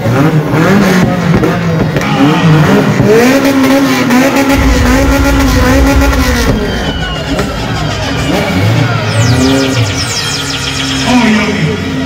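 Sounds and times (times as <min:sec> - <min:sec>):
car engine revving: 0:00.0 - 0:11.1
low rumble: 0:04.4 - 0:10.4.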